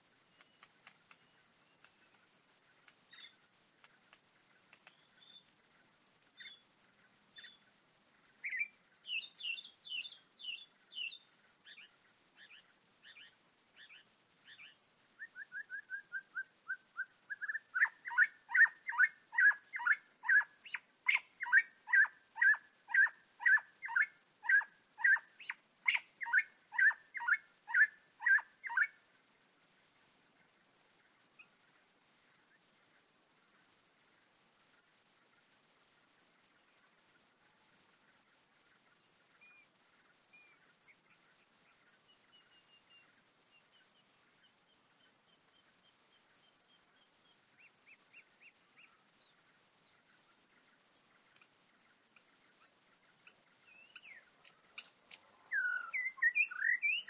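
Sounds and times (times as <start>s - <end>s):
bird calling: 6.3s - 29.0s, 51.3s - 57.0s.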